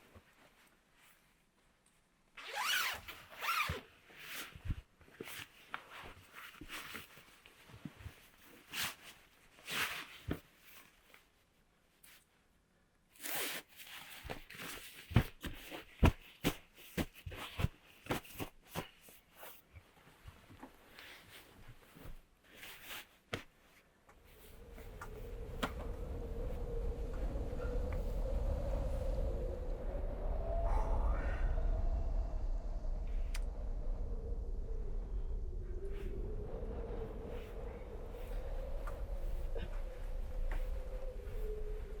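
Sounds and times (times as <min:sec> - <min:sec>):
zipper pulled: 0:02.4 - 0:03.8.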